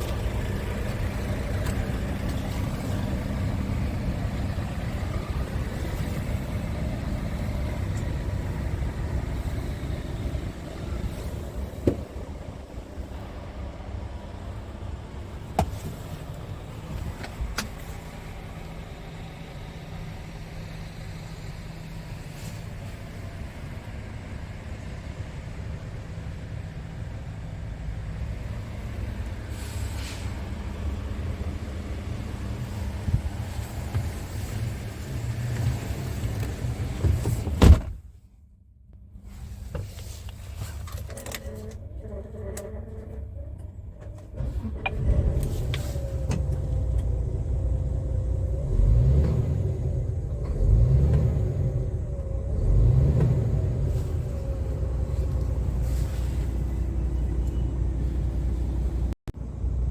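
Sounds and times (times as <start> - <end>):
diesel engine idling: 0.0 - 37.4, 41.5 - 59.9
cab door shutting: 9.2 - 12.5, 15.5 - 16.1, 35.2 - 38.1.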